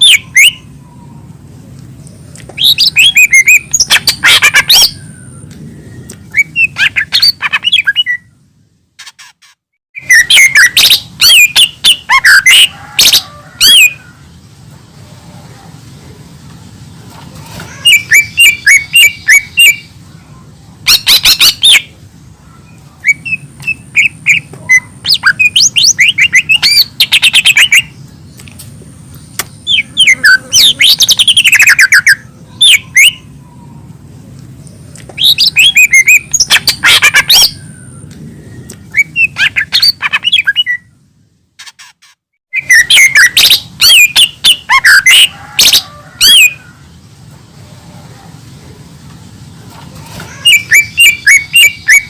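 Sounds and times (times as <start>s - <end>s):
steady low hum: 0.0s - 9.0s, 13.2s - 41.6s
bird singing whistled notes: 2.6s - 8.4s, 10.0s - 12.7s, 22.6s - 28.0s, 35.2s - 41.0s, 42.5s - 45.3s, 50.5s - 52.0s.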